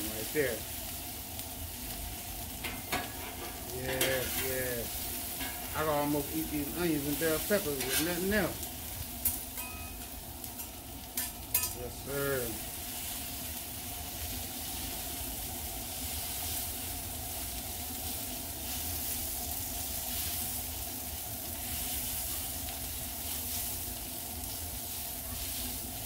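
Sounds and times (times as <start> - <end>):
vegetables sizzling on griddle: 0.0 - 26.0
metal spatulas scraping: 2.7 - 4.5, 7.7 - 8.4.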